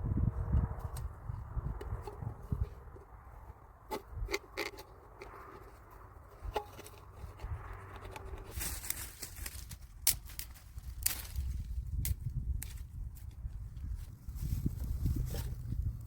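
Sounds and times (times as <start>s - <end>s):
low rumble: 0.0s - 3.6s
light knocks and scrapes: 0.6s - 11.5s.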